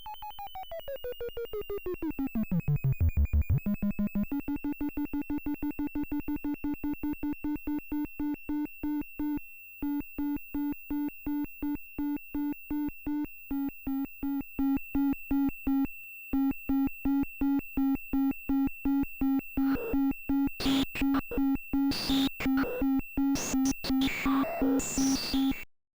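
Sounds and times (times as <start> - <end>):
synthesizer pulsing on a low note: 2.2 - 4.0.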